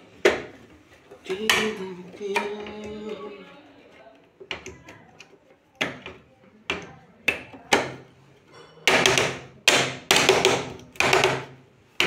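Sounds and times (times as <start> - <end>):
sharp knocks on hard surface: 8.9 - 11.6.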